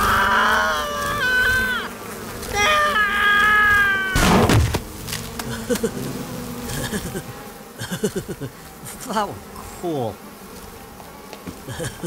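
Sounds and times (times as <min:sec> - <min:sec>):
cartoon bee swarm buzzing: 0:00.0 - 0:12.0
loud thump: 0:04.2 - 0:04.9.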